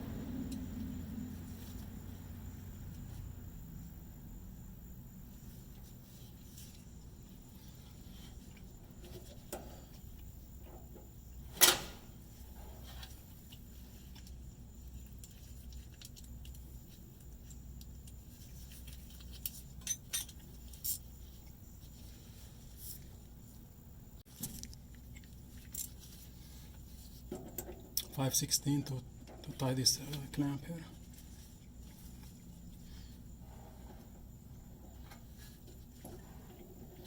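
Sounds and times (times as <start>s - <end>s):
metal tools clinking: 19.1s - 21.1s.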